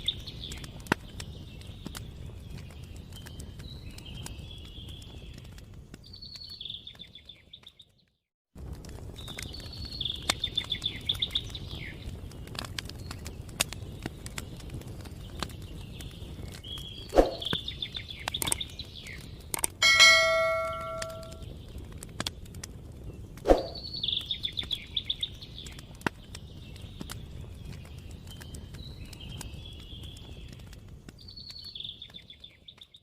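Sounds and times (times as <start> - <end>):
bell ringing: 19.8 - 21.4.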